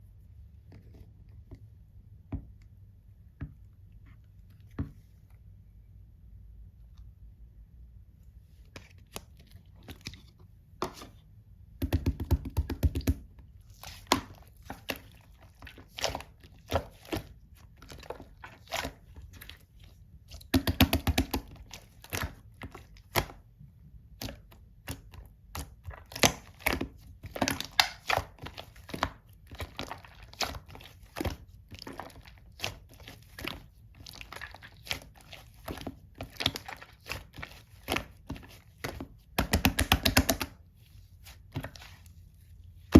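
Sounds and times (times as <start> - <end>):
slime crackling: 24.2 - 42.9.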